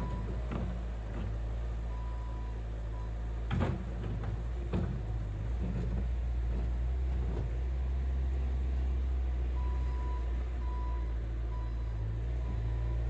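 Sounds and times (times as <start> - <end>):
skid steer engine running: 0.0 - 13.0.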